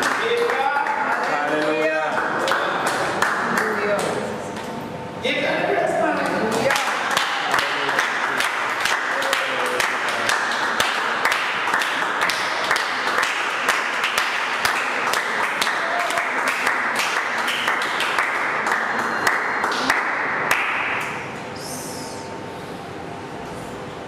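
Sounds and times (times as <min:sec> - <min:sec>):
congregation applauding: 0:00.0 - 0:04.2, 0:06.5 - 0:21.1.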